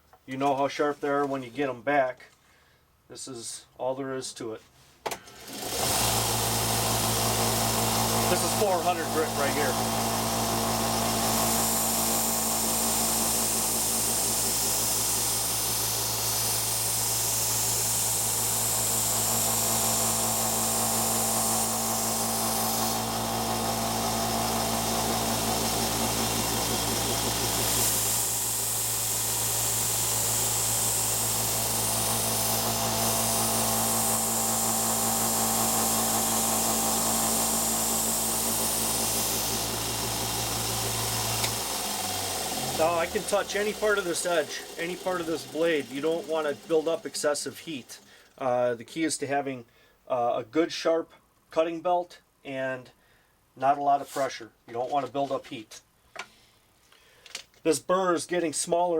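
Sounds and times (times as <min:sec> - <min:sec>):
belt sander motor hum: 0:05.4 - 0:48.4
knife grinding on sander belt: 0:05.8 - 0:48.0.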